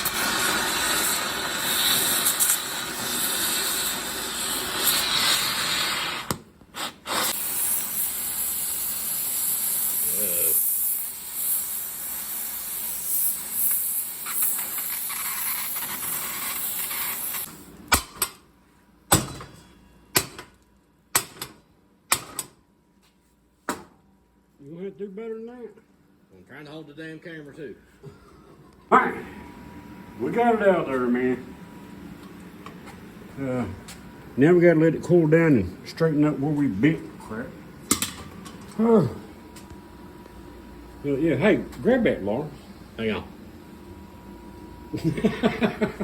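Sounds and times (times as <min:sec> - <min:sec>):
gas torch hissing: 0:00.0 - 0:17.8.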